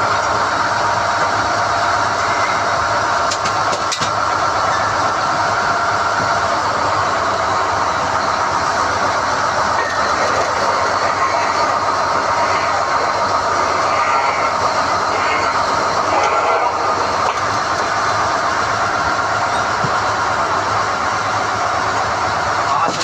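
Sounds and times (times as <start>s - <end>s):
drilling rig running: 0.0s - 23.0s.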